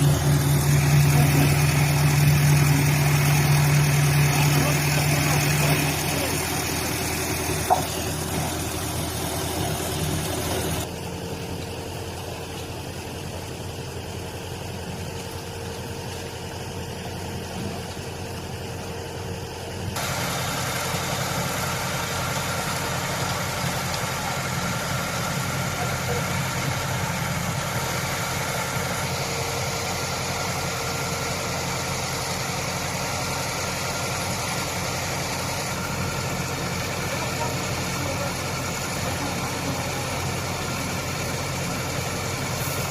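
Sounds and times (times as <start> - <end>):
vehicle engine idling: 0.0 - 42.9.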